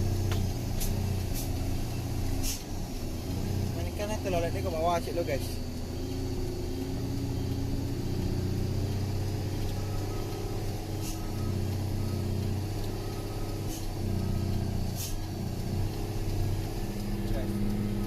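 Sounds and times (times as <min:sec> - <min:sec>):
truck engine running: 0:00.0 - 0:18.0
short hisses: 0:02.4 - 0:02.7, 0:11.0 - 0:11.3, 0:13.1 - 0:14.0, 0:15.0 - 0:15.3.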